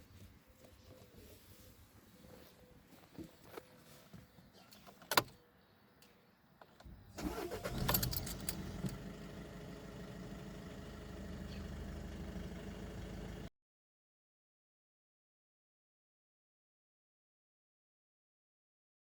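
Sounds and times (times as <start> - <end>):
car engine starting and idling: 6.8 - 13.5.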